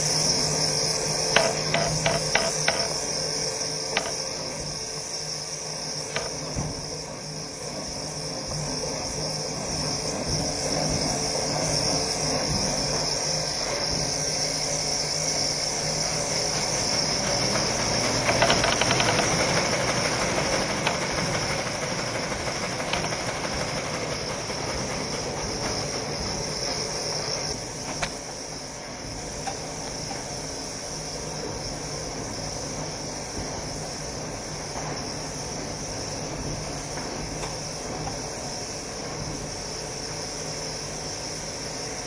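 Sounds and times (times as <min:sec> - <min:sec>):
machine hiss and hum: 0:00.0 - 0:42.0
rapid mechanical clicking: 0:01.2 - 0:03.2, 0:03.9 - 0:04.8, 0:06.0 - 0:06.6, 0:16.5 - 0:28.3.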